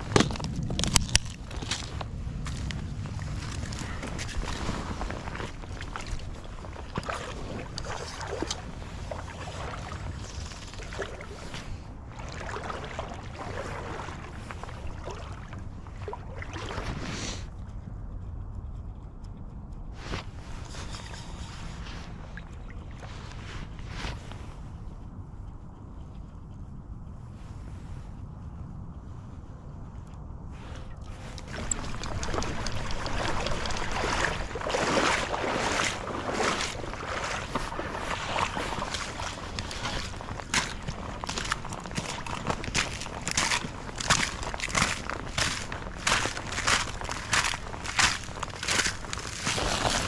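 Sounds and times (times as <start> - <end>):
crunchy footsteps: 0.0 - 17.5, 20.0 - 24.8, 30.6 - 50.0
splashing through shallow water: 0.0 - 17.5, 30.6 - 50.0
steady low rumble: 0.0 - 50.0.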